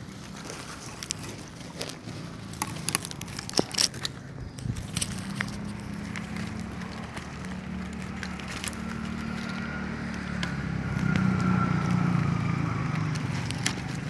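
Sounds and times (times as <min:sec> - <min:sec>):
low engine hum: 0:00.0 - 0:14.0
small clicks and rustles: 0:00.0 - 0:14.0.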